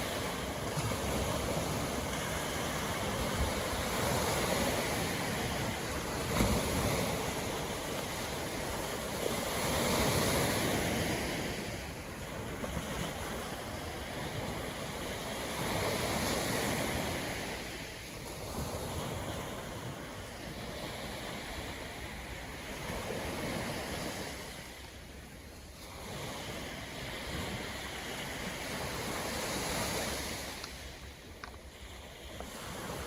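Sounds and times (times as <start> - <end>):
surf breaking on beach: 0.0 - 21.6.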